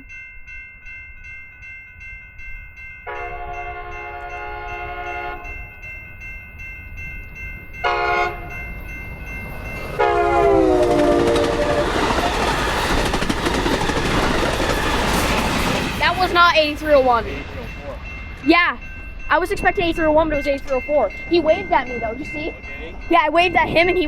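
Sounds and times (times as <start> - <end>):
crossing bells ringing: 0.0 - 24.0
train horn blasts: 3.1 - 5.7, 7.8 - 8.6, 10.0 - 12.4
train wheels on rails: 6.9 - 24.0.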